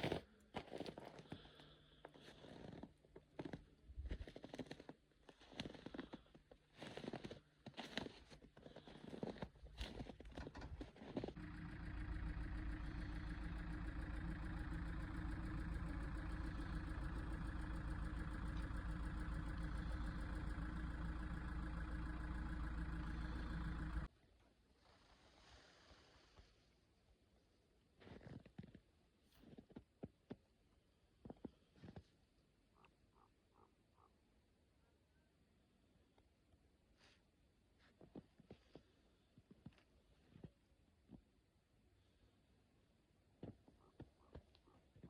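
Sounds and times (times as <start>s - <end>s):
vehicle engine idling: 8.7s - 24.1s.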